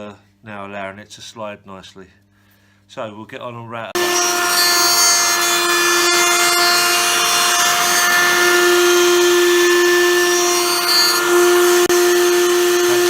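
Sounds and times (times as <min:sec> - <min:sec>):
electric router whine: 0:04.0 - 0:13.0
router cutting noise: 0:04.0 - 0:13.0.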